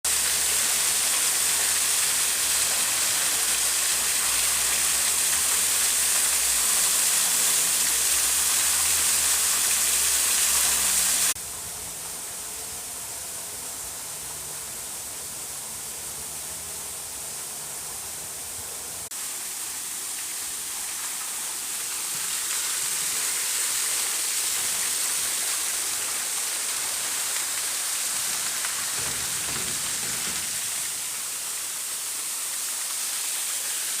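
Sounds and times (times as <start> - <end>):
waterfall rushing: 0.1 - 11.4, 19.0 - 34.0.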